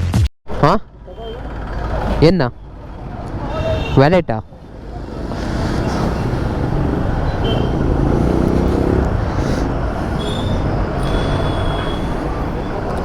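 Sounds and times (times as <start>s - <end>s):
road traffic noise: 0.5s - 13.0s
motorcycle engine running: 4.7s - 12.6s.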